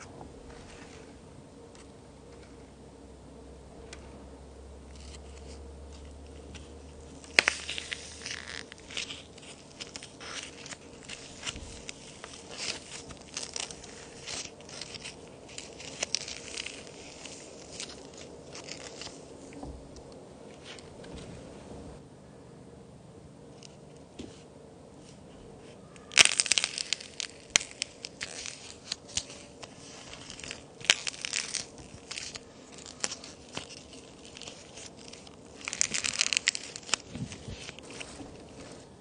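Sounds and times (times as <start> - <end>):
dry crackling and crunching: 3.8 - 21.2, 26.0 - 39.0
toy cookie snapping: 26.0 - 37.7.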